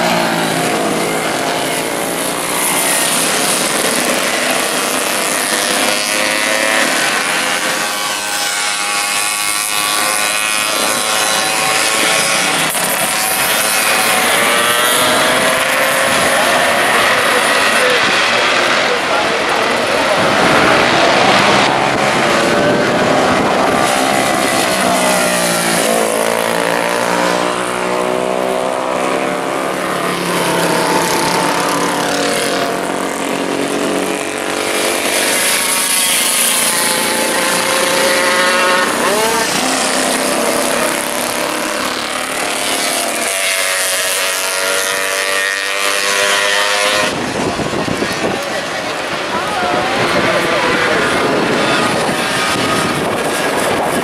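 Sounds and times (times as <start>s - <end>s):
racing motorcycle engines revving: 0.0s - 54.0s.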